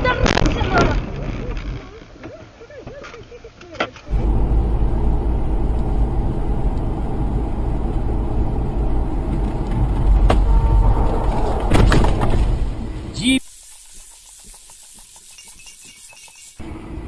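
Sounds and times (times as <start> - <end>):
car rumbling on road: 4.0 - 13.2.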